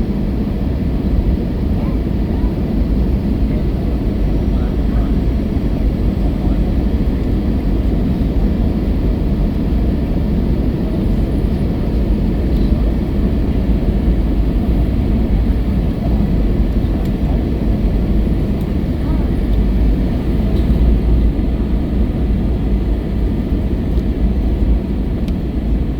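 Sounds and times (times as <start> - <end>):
airplane cabin engine rumble: 0.0 - 25.9.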